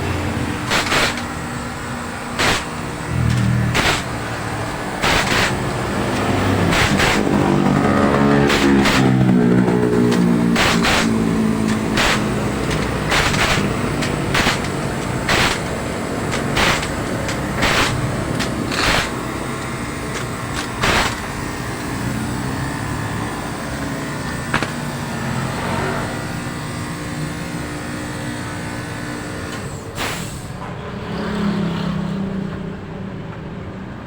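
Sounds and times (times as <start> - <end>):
car engine running: 0.0 - 26.9
short hissing bursts: 2.4 - 3.1, 10.6 - 19.2.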